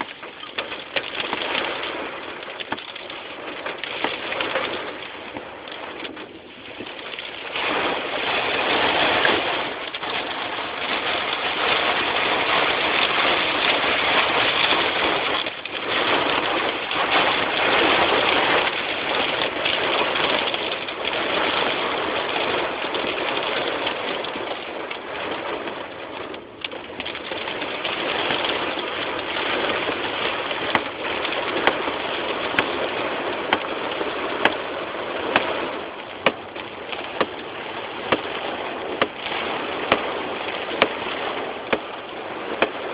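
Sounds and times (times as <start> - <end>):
wind blowing with rain: 0.0 - 42.9.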